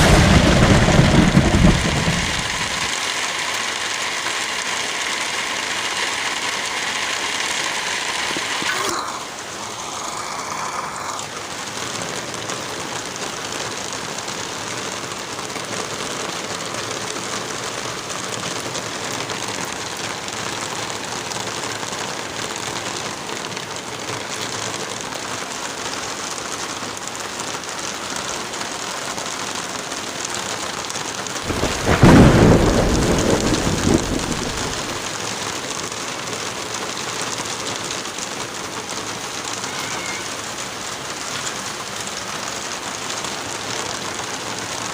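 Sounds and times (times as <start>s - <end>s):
thunderclap: 0.0s - 2.9s, 31.4s - 35.1s
heavy rain: 0.0s - 44.9s.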